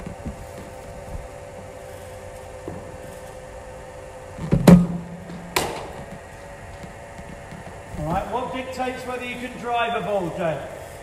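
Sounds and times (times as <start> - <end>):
bowling machine wheels humming: 0.0 - 11.0
machine firing ball thump: 4.4 - 6.1
bat hitting ball crack: 4.7 - 6.0.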